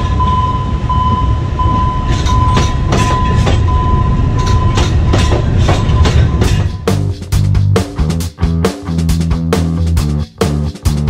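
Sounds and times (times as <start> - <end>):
high warning tone beeping: 0.0 - 7.0
train wheels clacking over rail joints: 2.0 - 7.2.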